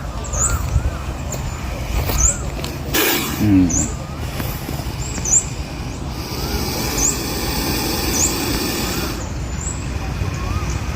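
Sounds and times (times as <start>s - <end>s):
small birds chirping: 0.0s - 10.9s
snake hissing: 2.9s - 3.9s, 5.5s - 9.4s.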